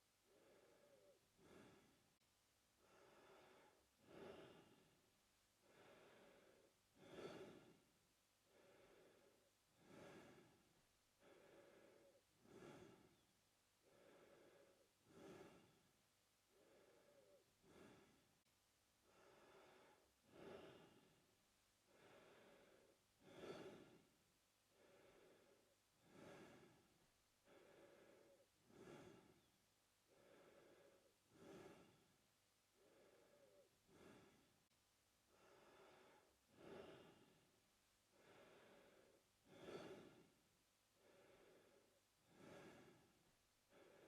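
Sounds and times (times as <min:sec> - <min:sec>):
man breathing through mouth: 0:11.2 - 0:13.2, 0:13.8 - 0:15.8, 0:16.5 - 0:18.2, 0:21.9 - 0:24.0, 0:24.8 - 0:29.5, 0:30.1 - 0:32.1, 0:32.8 - 0:34.5, 0:38.1 - 0:40.3, 0:41.0 - 0:44.0.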